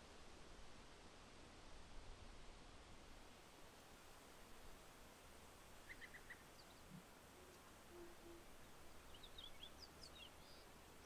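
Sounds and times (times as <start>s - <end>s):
steady low hiss: 0.0s - 11.0s
distant small birds chirping: 5.6s - 11.0s.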